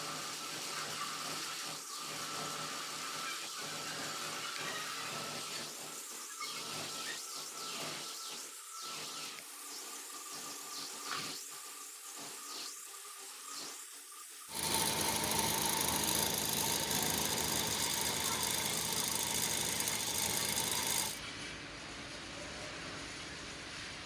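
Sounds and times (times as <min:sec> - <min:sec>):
power tool whining: 0:14.5 - 0:21.2
quiet machine noise: 0:14.5 - 0:21.4.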